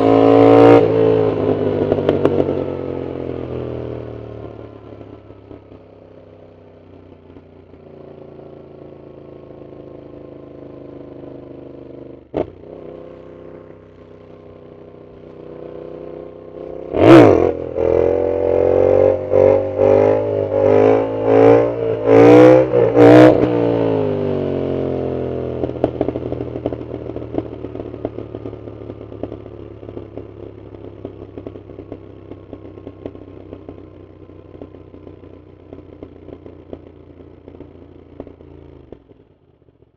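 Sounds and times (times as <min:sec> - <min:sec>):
motorcycle engine accelerating: 0:00.0 - 0:39.9
exhaust cracks and crackle: 0:25.6 - 0:39.8.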